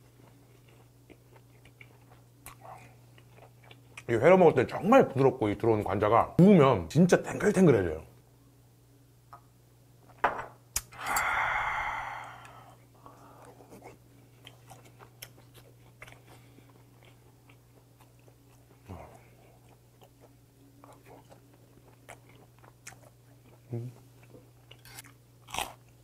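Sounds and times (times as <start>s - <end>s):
quiet chewing: 0.0s - 4.1s, 12.2s - 26.0s
loud breathy exhale: 10.9s - 12.7s.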